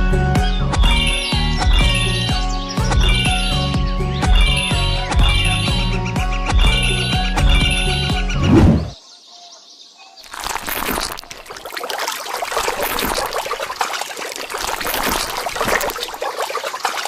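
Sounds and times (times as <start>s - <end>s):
water pouring and trickling: 10.2s - 17.0s.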